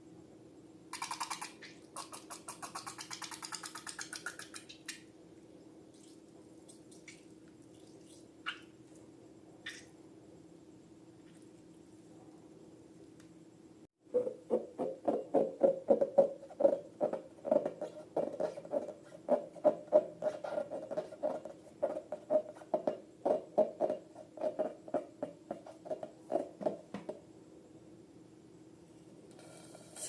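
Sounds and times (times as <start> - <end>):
squishy squeaks of slime: 5.9 - 8.8, 9.6 - 9.9.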